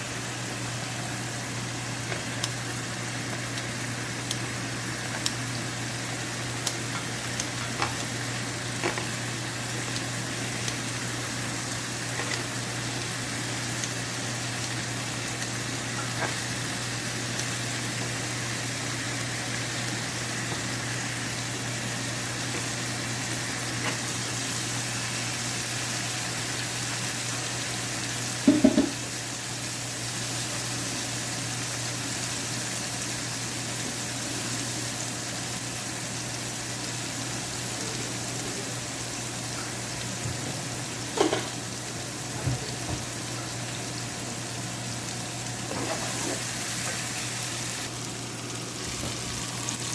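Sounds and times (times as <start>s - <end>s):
garlic sizzling in hot oil: 0.0s - 49.9s
spatula knocking on pan: 28.4s - 29.0s.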